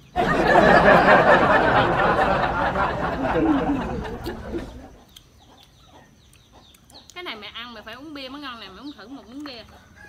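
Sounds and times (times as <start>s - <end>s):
women laughing: 0.0s - 5.0s.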